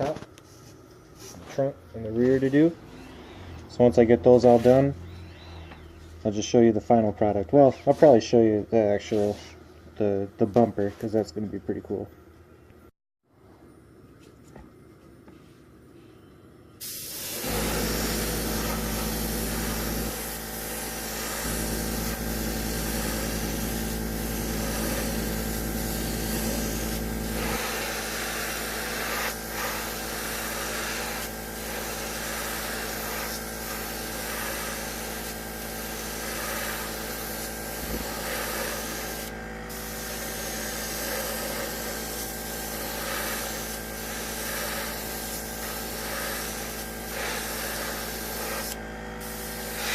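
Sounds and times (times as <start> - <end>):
steady low hum: 0.0 - 49.9
airbrush spraying hiss: 16.8 - 49.9.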